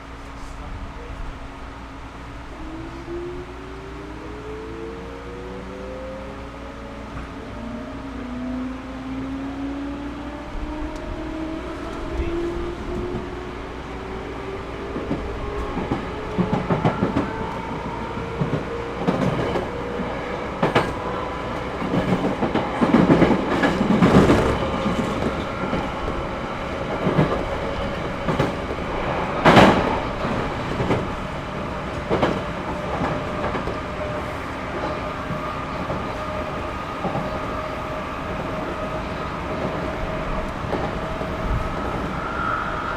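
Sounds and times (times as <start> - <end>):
wheels clacking over rail joints: 10.9 - 37.6.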